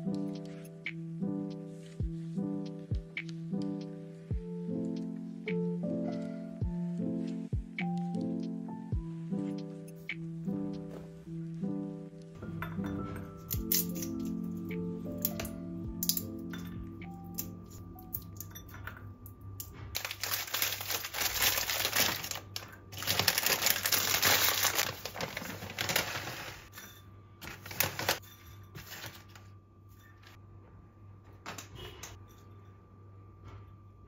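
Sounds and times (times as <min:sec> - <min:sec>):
small objects rustling and clicking: 0:20.0 - 0:26.7, 0:27.4 - 0:28.2.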